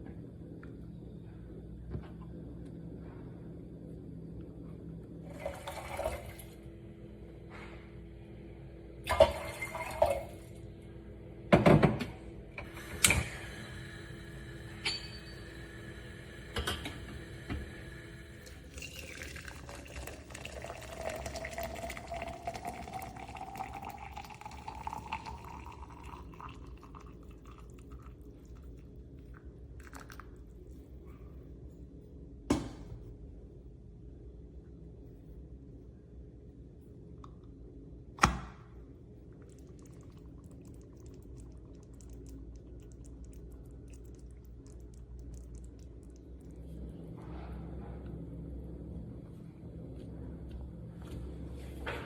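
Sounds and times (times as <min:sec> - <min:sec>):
water filling a container: 0:05.3 - 0:06.6, 0:09.1 - 0:10.4, 0:18.3 - 0:30.6, 0:39.4 - 0:46.6.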